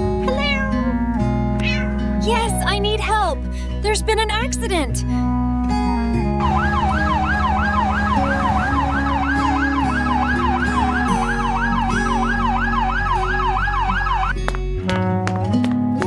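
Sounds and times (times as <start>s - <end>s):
background music: 0.0s - 16.0s
siren yelping: 6.4s - 14.3s.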